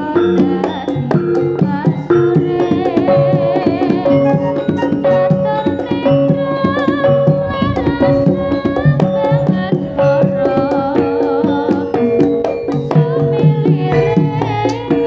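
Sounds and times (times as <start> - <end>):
metallophone and gong-chime tones: 4.2 - 5.3
wavering melody line: 4.2 - 5.6.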